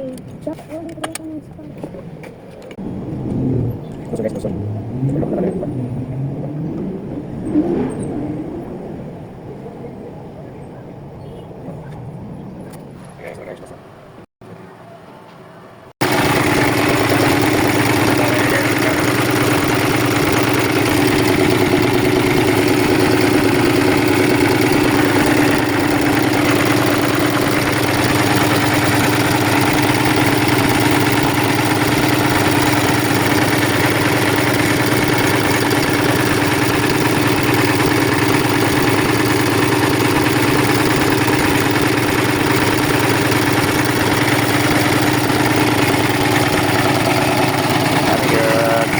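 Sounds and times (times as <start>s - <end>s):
engine idling: 16.0s - 48.9s.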